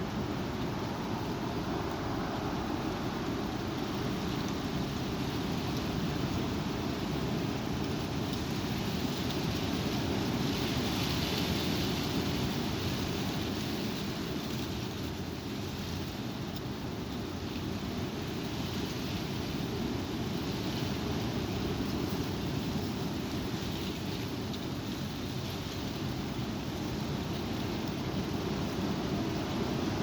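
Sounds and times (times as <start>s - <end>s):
strong wind on microphone: 0.0s - 14.6s.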